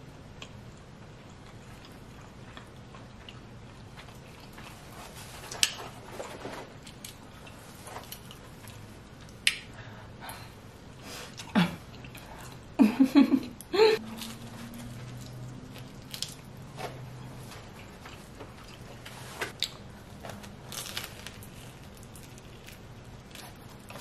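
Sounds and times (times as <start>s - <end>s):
person chewing pizza: 0.3s - 9.7s, 11.2s - 12.8s, 14.0s - 24.0s
lip smacks: 9.2s - 9.8s.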